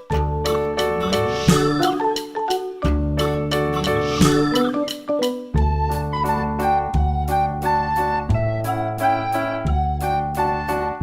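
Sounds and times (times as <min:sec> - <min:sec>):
mallet percussion melody: 0:00.0 - 0:05.5
bass line: 0:00.1 - 0:02.0, 0:02.9 - 0:04.8
steady beat: 0:00.5 - 0:03.1, 0:03.8 - 0:05.0.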